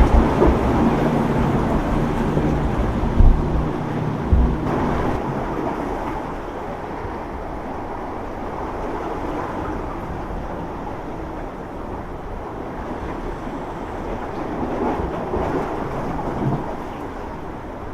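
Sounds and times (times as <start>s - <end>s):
boat engines rumbling: 0.0s - 17.9s
churning water: 0.0s - 17.9s
low thump: 1.5s - 5.2s.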